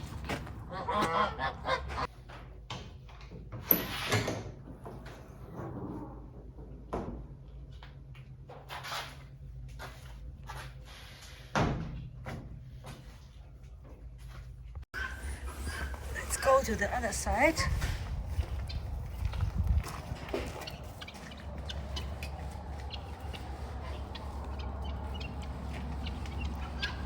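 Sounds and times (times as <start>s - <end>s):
bird honking: 0.7s - 2.1s, 20.6s - 27.0s.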